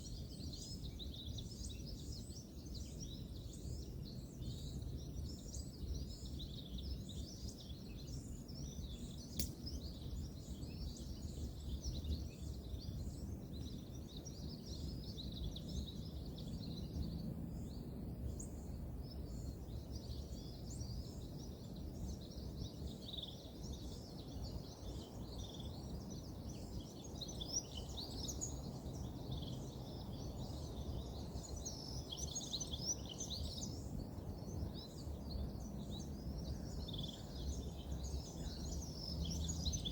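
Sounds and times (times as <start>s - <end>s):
sharp click: 9.4s - 9.7s
distant road traffic rumble: 37.4s - 39.9s.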